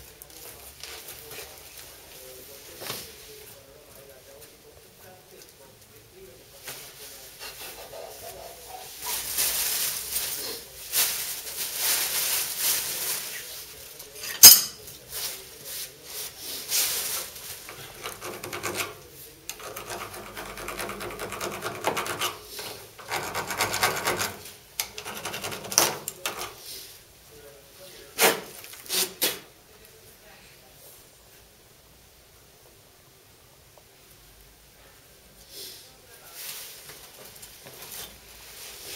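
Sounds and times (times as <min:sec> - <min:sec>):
rasping strokes on a pipe: 0:17.7 - 0:26.6.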